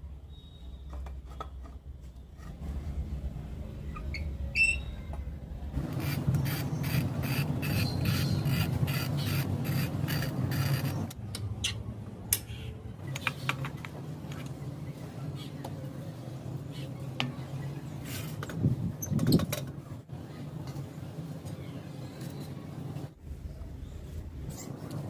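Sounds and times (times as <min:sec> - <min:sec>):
rhythmic scraping strokes: 0:05.8 - 0:11.1.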